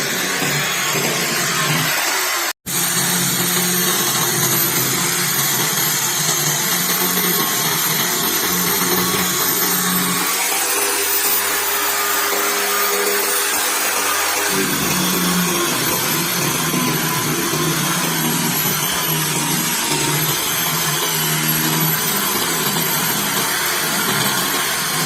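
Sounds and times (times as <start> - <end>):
power tool whirring: 0.0 - 25.0.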